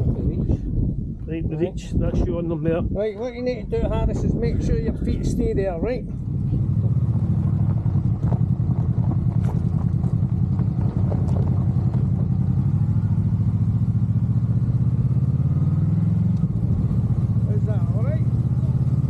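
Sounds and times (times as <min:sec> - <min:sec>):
motorcycle engine running: 0:05.2 - 0:19.0.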